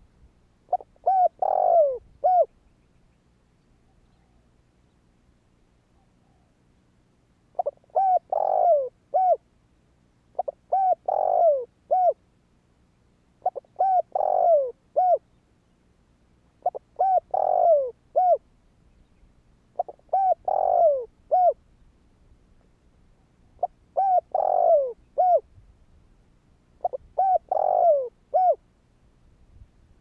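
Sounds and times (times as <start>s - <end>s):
dove cooing: 0.7s - 2.5s, 7.5s - 9.4s, 10.3s - 12.2s, 13.4s - 15.2s, 16.6s - 18.4s, 19.7s - 21.6s, 23.2s - 25.5s, 26.8s - 28.6s.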